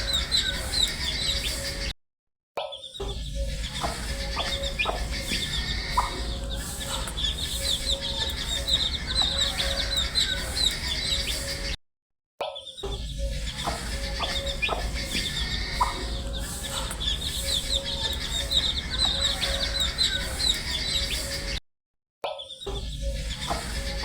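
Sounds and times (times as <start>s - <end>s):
baby chicks cheeping: 0.0s - 1.9s, 3.4s - 11.7s, 12.8s - 21.6s.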